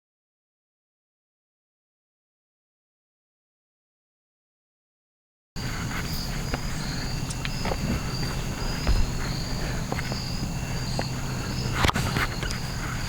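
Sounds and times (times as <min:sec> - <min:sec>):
insects chirping trill: 0:05.6 - 0:13.0
low hum: 0:05.6 - 0:13.0.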